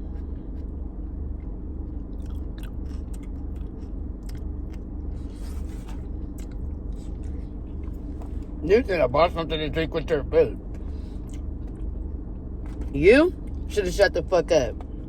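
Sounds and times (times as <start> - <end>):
chewing and biting food: 0.0 - 8.6, 10.6 - 12.0
steady low hum: 0.0 - 15.0.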